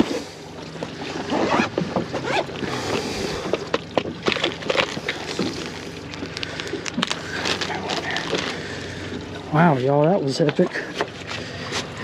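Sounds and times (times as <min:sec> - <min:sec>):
water slapping boat hull: 0:00.0 - 0:12.0
fishing gear knocks and clicks: 0:01.6 - 0:08.6.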